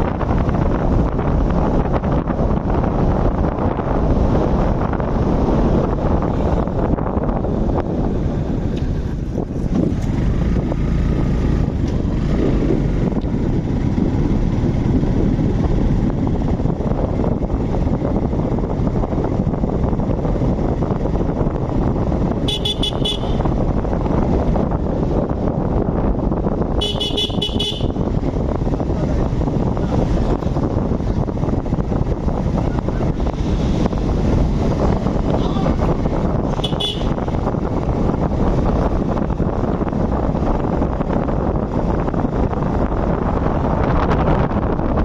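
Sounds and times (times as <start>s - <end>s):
road rumble: 0.0s - 45.0s
wind buffeting microphone: 0.0s - 45.0s
vehicle horn honking: 22.4s - 23.5s, 26.8s - 28.0s, 36.6s - 37.3s.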